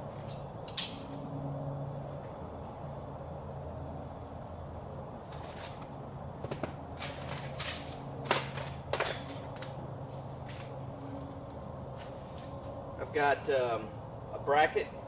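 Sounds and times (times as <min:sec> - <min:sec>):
steady low hum: 0:00.0 - 0:15.0
sharp clicks and metal clinks: 0:06.4 - 0:09.8.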